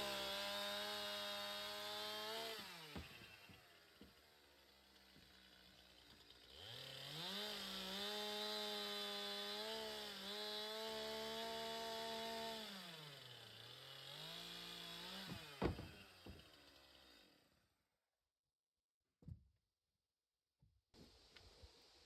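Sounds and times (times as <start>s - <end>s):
chainsaw revving: 0.0s - 3.6s, 4.8s - 17.3s.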